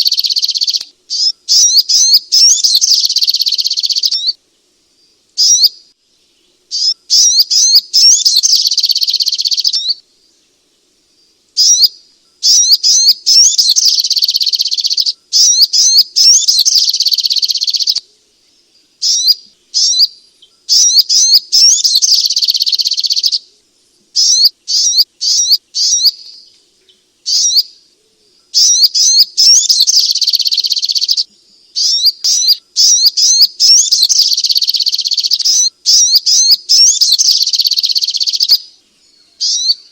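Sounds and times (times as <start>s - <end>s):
bird rapid high chattering: 0.0s - 4.3s, 5.4s - 5.7s, 6.7s - 10.0s, 11.6s - 18.0s, 19.0s - 23.4s, 24.2s - 26.3s, 27.3s - 27.7s, 28.6s - 38.6s.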